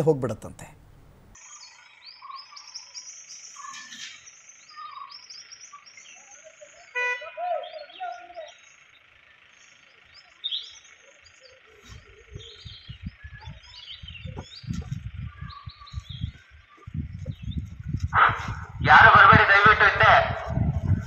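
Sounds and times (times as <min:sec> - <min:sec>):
small birds chirping: 0:01.3 - 0:21.0
insect drone: 0:01.4 - 0:14.2.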